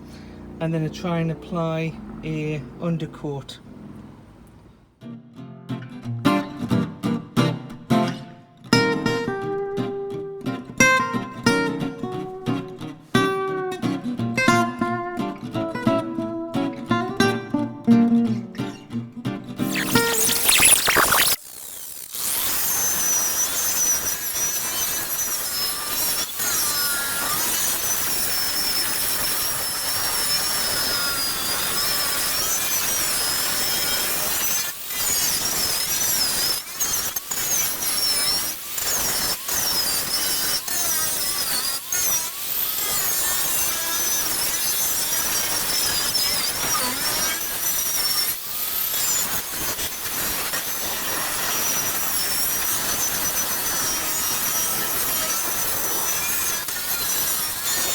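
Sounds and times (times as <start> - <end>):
angle grinder wire wheel whining: 19.6 - 57.9.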